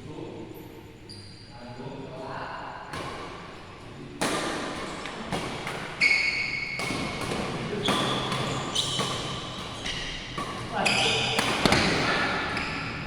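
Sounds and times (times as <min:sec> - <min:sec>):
racket hitting shuttlecock: 0:04.2 - 0:13.0
shoes squeaking on court floor: 0:04.8 - 0:13.0.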